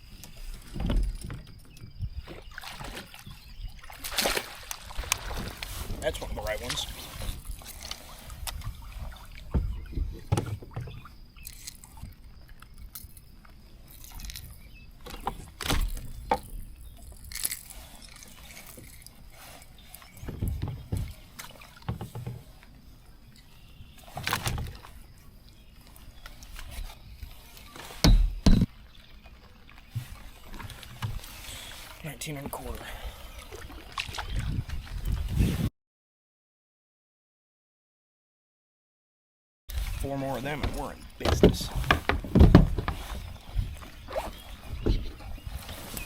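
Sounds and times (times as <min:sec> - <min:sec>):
water sloshing: 0:00.0 - 0:35.4, 0:39.7 - 0:46.0
low thumps: 0:09.4 - 0:11.0
knocks against a kayak: 0:09.4 - 0:11.1, 0:20.2 - 0:22.5, 0:28.0 - 0:28.8, 0:40.6 - 0:45.2.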